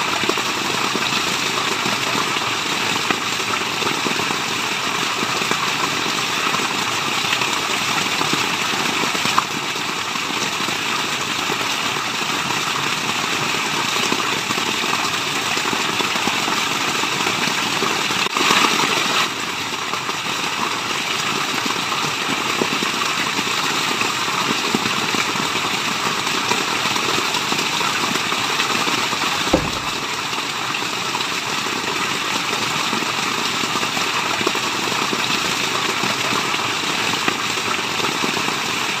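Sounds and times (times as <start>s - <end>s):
rain and running water: 0.0s - 39.0s
low thump: 29.5s - 30.2s.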